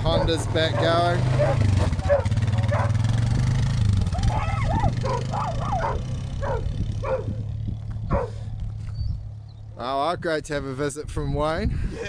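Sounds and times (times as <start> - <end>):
engine running steadily: 0.0 - 10.2
dog yipping and barking: 0.1 - 3.0, 4.2 - 7.4, 8.1 - 8.4.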